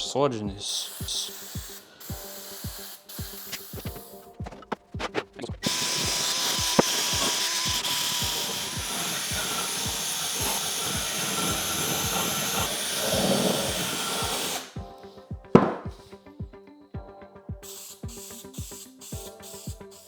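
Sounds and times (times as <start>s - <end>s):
background music with steady beat: 0.0s - 20.0s
aerosol can spraying hiss: 0.6s - 4.4s, 5.0s - 14.8s, 17.6s - 20.0s.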